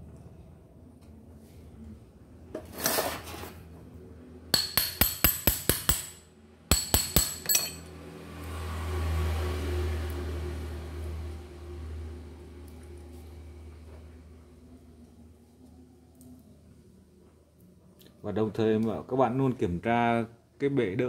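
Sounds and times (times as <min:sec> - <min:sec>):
brief scraping: 0:02.6 - 0:03.6
metal-on-metal tapping: 0:04.6 - 0:07.9.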